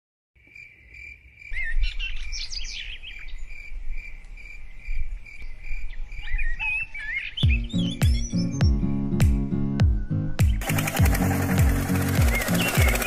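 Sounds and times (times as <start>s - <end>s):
cricket chirping: 0.4s - 6.6s
birds chirping: 0.6s - 9.1s, 9.9s - 13.0s.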